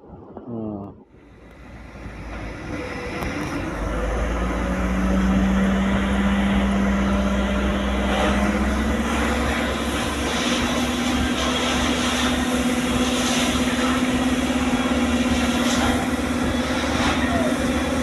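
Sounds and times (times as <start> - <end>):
heavy truck engine running: 1.2 - 18.0.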